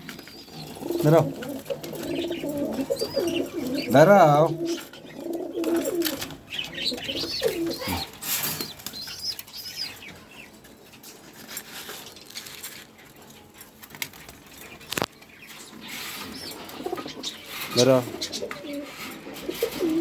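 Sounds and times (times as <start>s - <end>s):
pigeons cooing: 0.0s - 10.6s, 14.1s - 20.0s
pigeons flapping wings: 13.7s - 15.1s.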